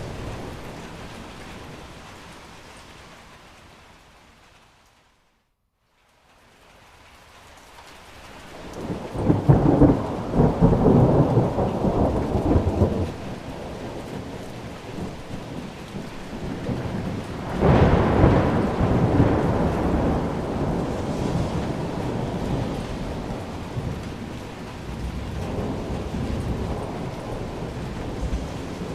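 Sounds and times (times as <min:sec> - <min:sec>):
steady rain: 0:00.0 - 0:28.9
thunder rolling: 0:08.7 - 0:28.9.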